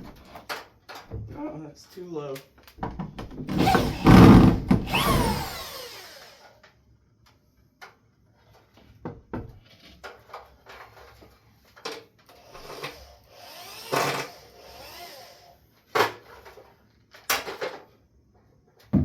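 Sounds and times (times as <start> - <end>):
power drill winding down: 3.5 - 6.6, 12.4 - 15.6.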